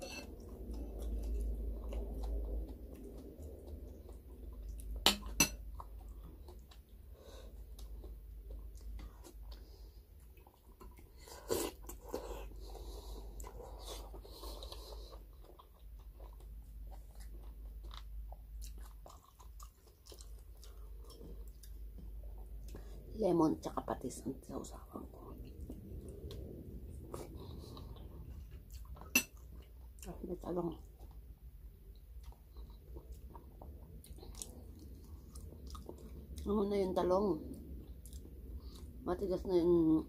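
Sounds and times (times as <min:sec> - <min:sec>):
chewing with wet crackles: 0:00.0 - 0:23.1, 0:24.6 - 0:40.0.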